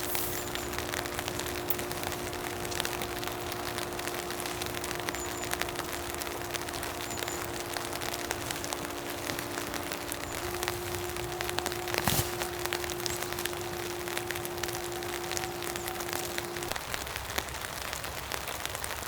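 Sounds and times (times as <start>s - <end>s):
low hum: 0.0s - 16.9s
raindrops ticking close by: 0.0s - 19.0s
steady rain falling: 0.0s - 19.0s.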